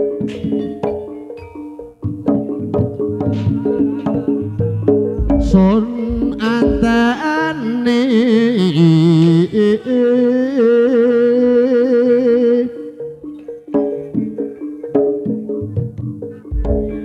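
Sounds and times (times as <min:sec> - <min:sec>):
drum strokes and percussion: 0:00.0 - 0:07.7, 0:13.6 - 0:17.0
instrumental accompaniment: 0:00.0 - 0:17.0
person singing with vibrato: 0:03.5 - 0:13.6.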